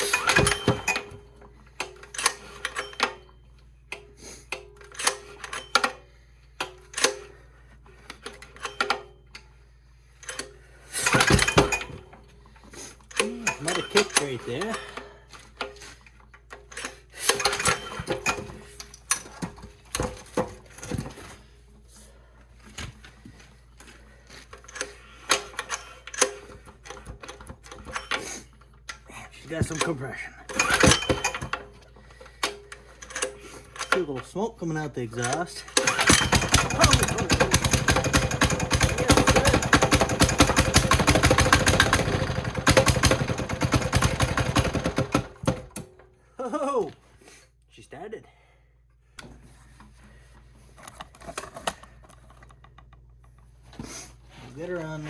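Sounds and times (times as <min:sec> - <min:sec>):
diesel engine cranked by hand: 0:00.0 - 0:03.3, 0:03.9 - 0:21.1, 0:23.5 - 0:46.2
diesel engine knocking: 0:35.9 - 0:45.4.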